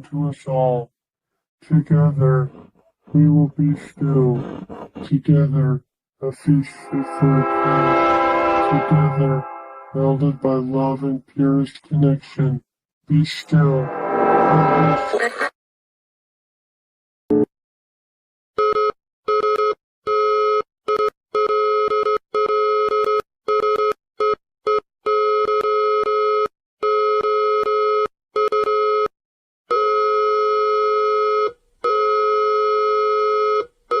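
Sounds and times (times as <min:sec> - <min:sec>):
stuttering electronic tone: 0:06.2 - 0:10.6, 0:13.3 - 0:15.5.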